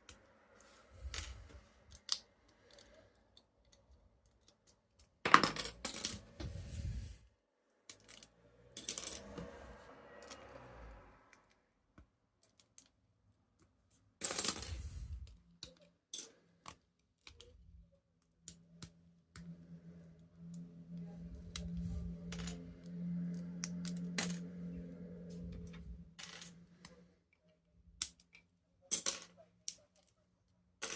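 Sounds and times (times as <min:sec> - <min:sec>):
plastic toy bricks clicking and rattling: 0:01.0 - 0:06.1.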